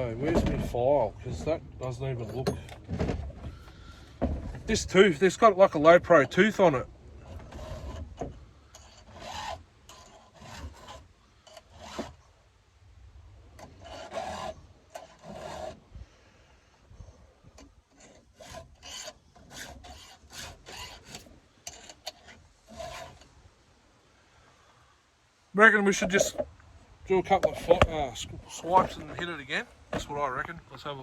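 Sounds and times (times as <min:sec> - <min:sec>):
hand file rasping on saw chain: 0:07.3 - 0:12.3, 0:13.6 - 0:15.8, 0:17.9 - 0:23.3.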